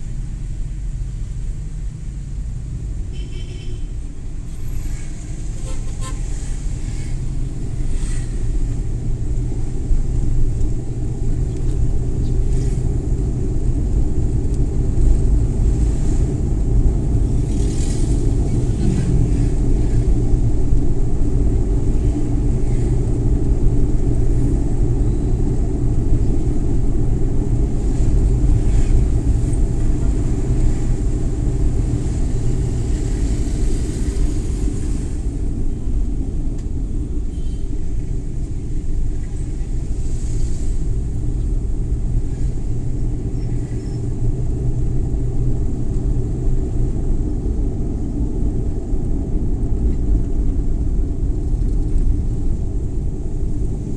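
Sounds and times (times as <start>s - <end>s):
van engine and tyres rumbling: 0.0s - 53.9s.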